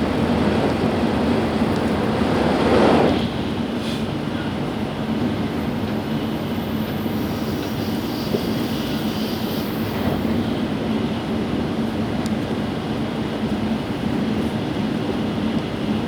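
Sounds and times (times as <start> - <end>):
train running noise inside cabin: 0.0 - 16.0
high hiss: 6.2 - 10.4.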